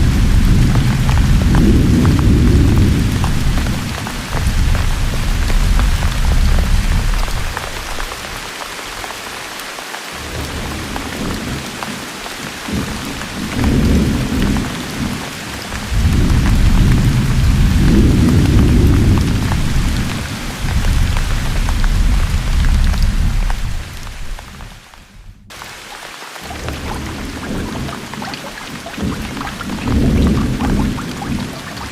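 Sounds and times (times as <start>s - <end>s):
rolling thunder: 0.0s - 8.1s, 12.7s - 25.6s, 29.0s - 31.9s
heavy rain falling: 0.0s - 31.9s.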